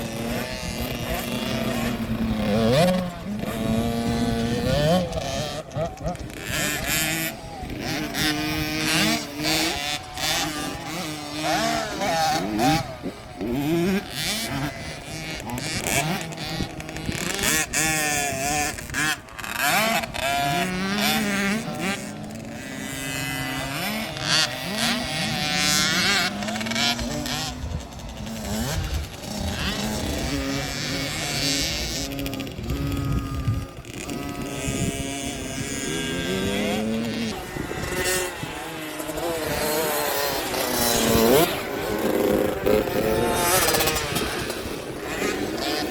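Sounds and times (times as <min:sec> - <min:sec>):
spectators' voices: 0:00.0 - 0:22.6
dirt bike engines revving: 0:00.0 - 0:45.9.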